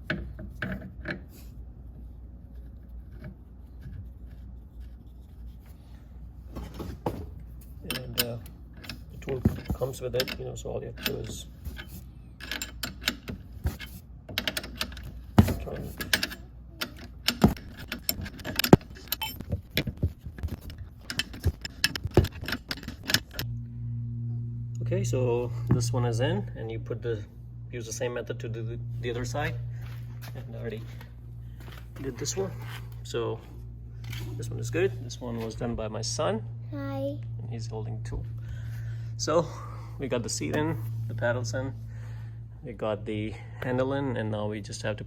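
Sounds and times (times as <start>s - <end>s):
low steady hum: 0.0s - 45.0s
metal clicks of wrench and pedal: 11.0s - 15.1s.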